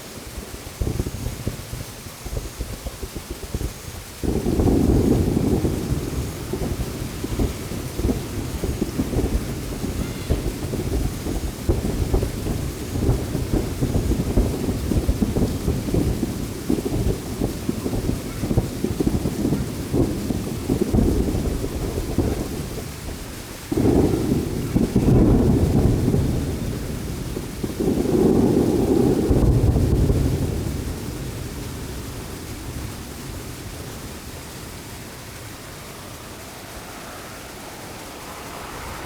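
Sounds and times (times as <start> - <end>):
fireworks booming: 0.0 - 39.0
echoing rumble: 4.2 - 15.7, 19.8 - 39.0.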